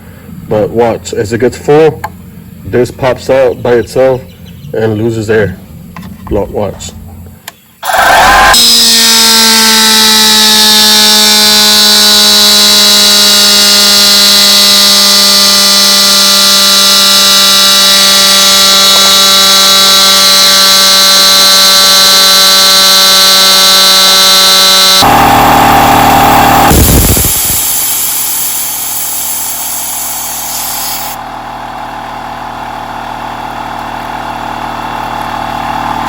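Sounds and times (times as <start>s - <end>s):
air compressor running: 0.0s - 0.8s, 2.0s - 2.7s, 7.0s - 36.0s
loud hiss of escaping air: 26.7s - 31.2s.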